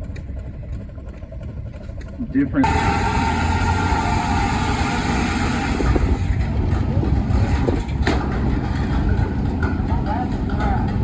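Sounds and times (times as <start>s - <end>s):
engine running with low rumble: 0.0s - 11.0s
steady tone: 2.6s - 6.4s.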